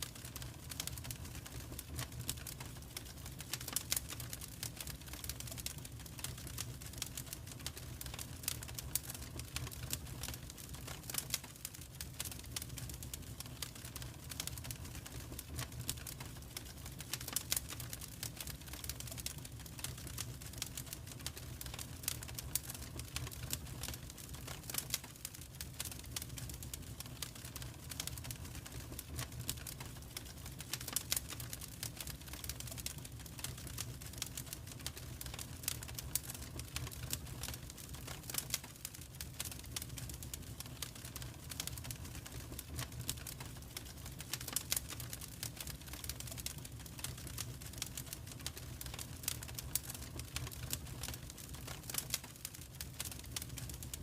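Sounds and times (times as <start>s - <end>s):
low rumble of flames: 0.0s - 54.0s
wood fire crackling and popping: 0.0s - 54.0s.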